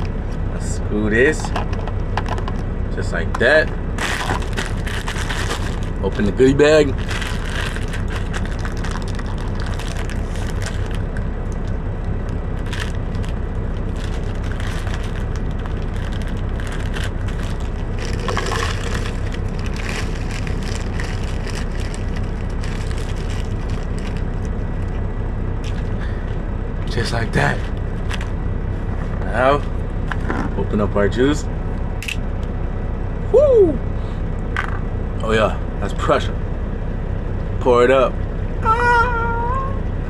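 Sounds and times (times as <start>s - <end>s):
steady low hum: 0.0s - 40.0s
plastic bag crinkling: 4.0s - 6.0s, 7.0s - 11.2s, 12.5s - 24.9s.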